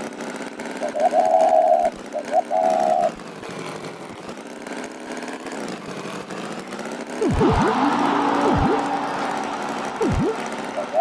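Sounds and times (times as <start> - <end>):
cartoon tractor engine running: 7.2 - 11.0
held high tone with blips: 7.2 - 11.0.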